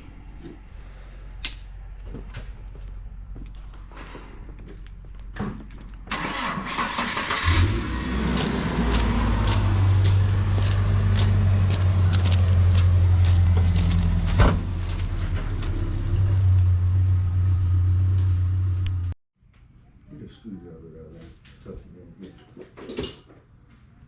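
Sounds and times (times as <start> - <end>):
engine humming: 0.3 - 19.2.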